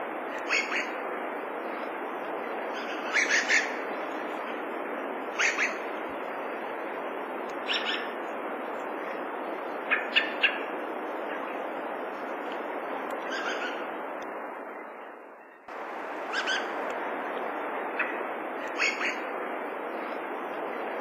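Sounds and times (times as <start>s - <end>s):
steady hiss: 0.0s - 14.9s, 15.7s - 21.0s
thrush calling: 0.3s - 1.0s, 2.7s - 3.9s, 5.3s - 5.9s, 7.6s - 8.2s, 9.8s - 10.7s, 13.2s - 13.9s, 15.5s - 19.3s.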